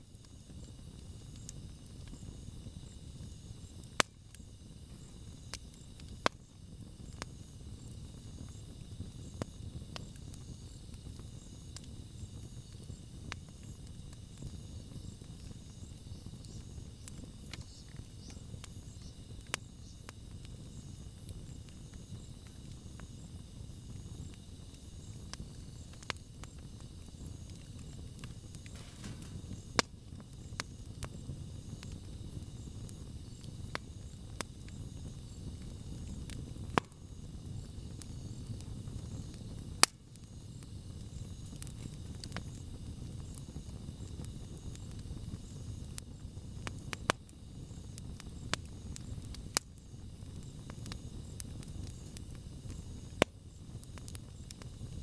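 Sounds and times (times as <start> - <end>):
campfire flames rushing: 0.0 - 55.0
fire crackling and popping: 0.0 - 55.0.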